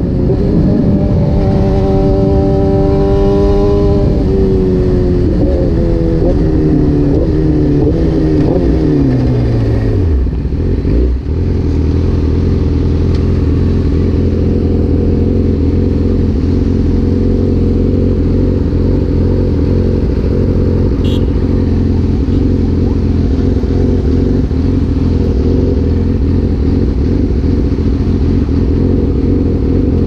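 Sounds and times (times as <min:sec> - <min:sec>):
motorcycle engine revving down and idling: 0:00.0 - 0:30.0.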